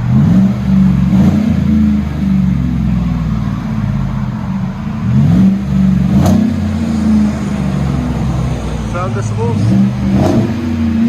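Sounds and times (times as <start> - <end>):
engine exhaust revving: 0.0 - 11.0.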